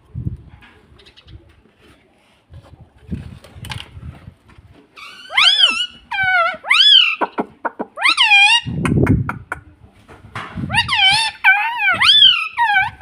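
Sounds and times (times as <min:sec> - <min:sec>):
parrot calling: 0:05.0 - 0:08.8, 0:10.7 - 0:13.0.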